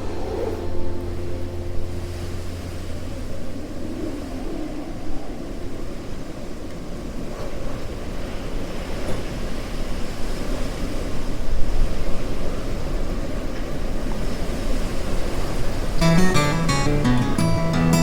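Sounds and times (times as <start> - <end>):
vehicle engine rumble: 0.0 - 4.8
wind: 0.0 - 18.0.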